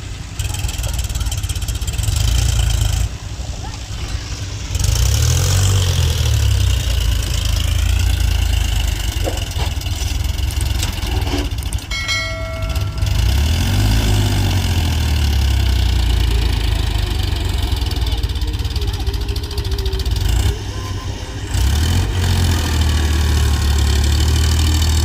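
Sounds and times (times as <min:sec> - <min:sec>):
tractor diesel engine revving: 0:00.0 - 0:25.0
steady high tone: 0:11.9 - 0:15.0.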